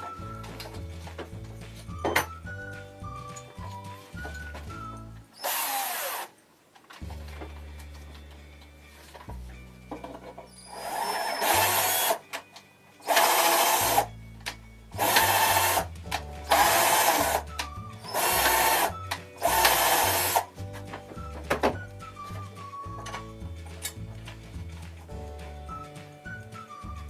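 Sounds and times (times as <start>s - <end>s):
background music: 0.0s - 6.3s, 7.0s - 27.0s
cordless drill drilling: 5.4s - 6.3s, 10.6s - 12.2s, 13.0s - 14.1s, 15.0s - 15.9s, 16.5s - 20.5s.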